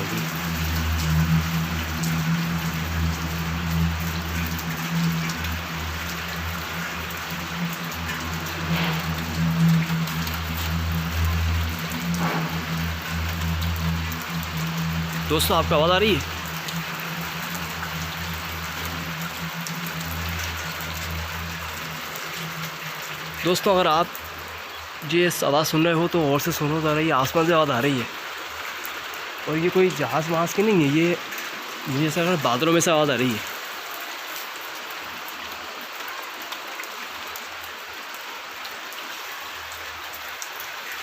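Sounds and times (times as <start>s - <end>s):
low droning hum from sky: 0.0s - 23.4s
constant hiss: 0.0s - 41.0s.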